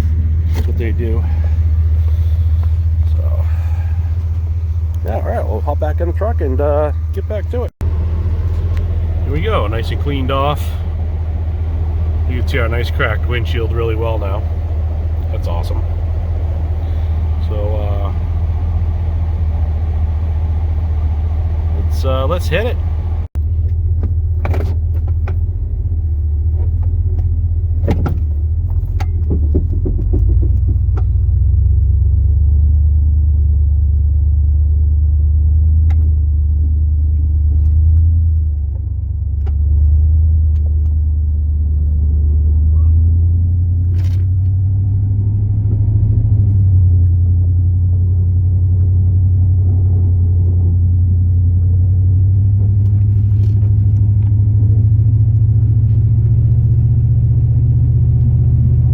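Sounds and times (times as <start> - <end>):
truck engine droning: 0.0 - 58.9
knocks and clicks: 26.7 - 31.3.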